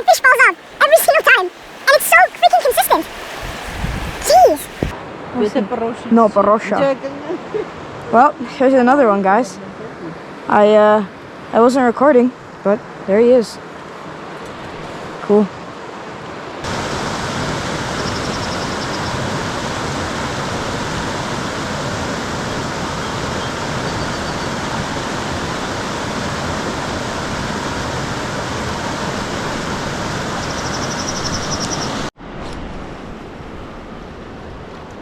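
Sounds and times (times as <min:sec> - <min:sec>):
rushing river water: 0:00.0 - 0:05.0, 0:15.8 - 0:32.1.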